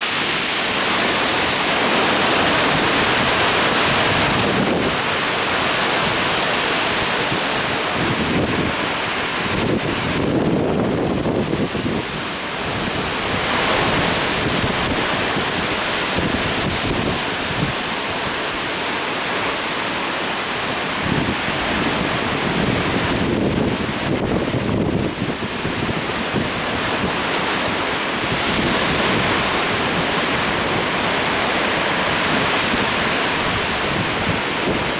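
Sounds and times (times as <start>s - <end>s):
surf breaking: 0.0s - 11.7s
wind on microphone: 0.1s - 18.6s, 20.7s - 34.9s.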